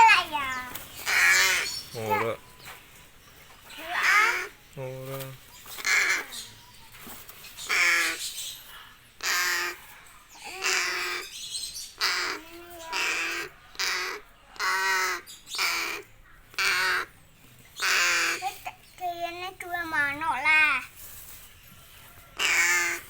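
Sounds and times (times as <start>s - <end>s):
crow cawing: 1.0s - 2.3s, 3.8s - 4.6s, 5.8s - 6.4s, 7.7s - 8.2s, 9.2s - 9.9s, 10.5s - 11.3s, 12.0s - 17.1s, 17.8s - 18.6s, 22.4s - 23.0s.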